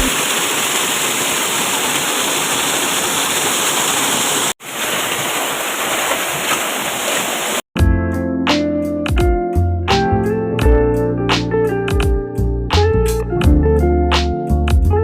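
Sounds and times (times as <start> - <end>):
rushing water: 0.0 - 7.6.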